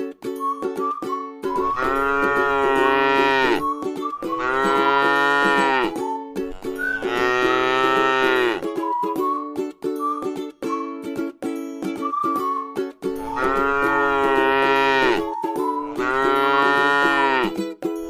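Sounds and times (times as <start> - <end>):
light ukulele music: 0.0 - 18.0
cow mooing: 1.6 - 3.6, 4.3 - 8.6, 13.2 - 15.3, 15.9 - 17.5.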